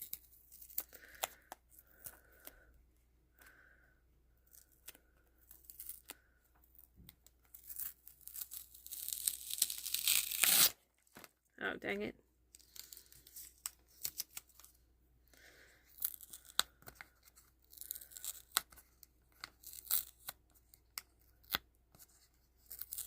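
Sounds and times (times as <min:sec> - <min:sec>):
tearing: 0:04.4 - 0:06.3, 0:07.4 - 0:10.8, 0:15.9 - 0:21.6, 0:22.6 - 0:23.0.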